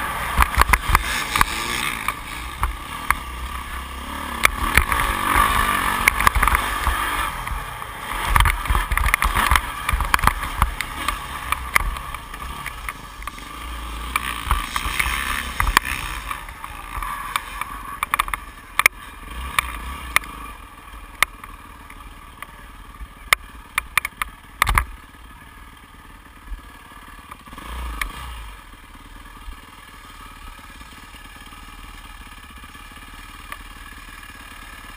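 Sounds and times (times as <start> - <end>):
motocross bike engine running: 0.0 - 34.9
sharp knocks and clatter: 0.3 - 3.3, 4.4 - 7.0, 8.2 - 13.5, 14.1 - 20.3, 23.3 - 25.0.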